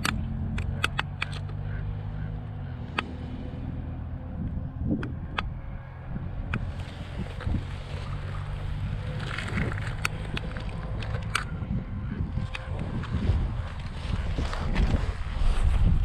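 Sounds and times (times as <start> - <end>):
sharp clicks: 0.0 - 3.4, 4.9 - 5.7, 9.1 - 11.6, 12.4 - 13.2
motorcycle engine idling: 0.0 - 13.8
wind buffeting microphone: 0.0 - 16.0.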